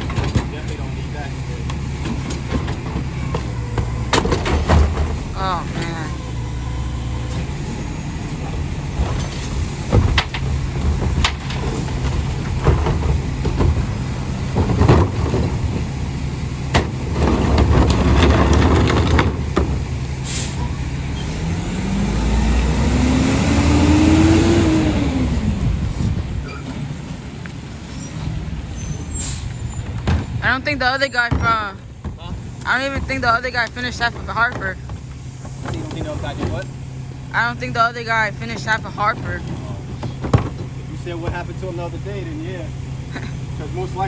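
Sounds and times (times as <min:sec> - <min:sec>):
knocks and thuds of trash loading: 0:00.0 - 0:21.8, 0:29.8 - 0:37.3, 0:38.2 - 0:44.0
garbage truck diesel engine running: 0:00.0 - 0:44.0.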